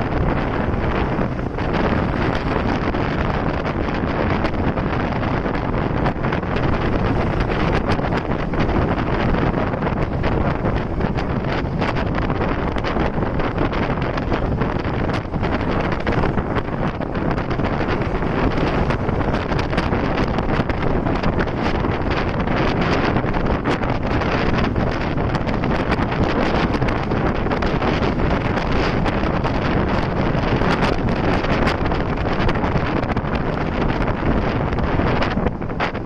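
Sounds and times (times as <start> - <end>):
motorcycle noise: 0.0 - 36.0
wind buffeting microphone: 0.0 - 36.0.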